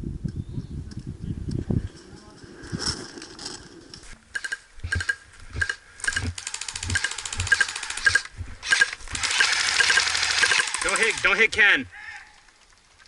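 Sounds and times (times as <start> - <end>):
rapid airsoft gunfire: 4.4 - 11.4.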